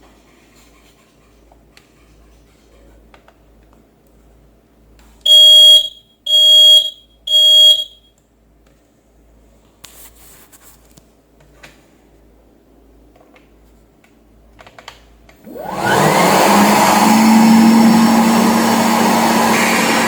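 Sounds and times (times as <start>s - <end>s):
loud electronic beeps: 5.3s - 8.0s.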